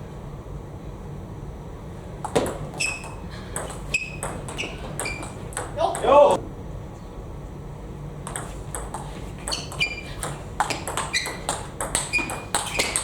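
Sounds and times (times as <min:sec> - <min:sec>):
table tennis ball clicking: 0:02.2 - 0:06.1, 0:08.3 - 0:13.0.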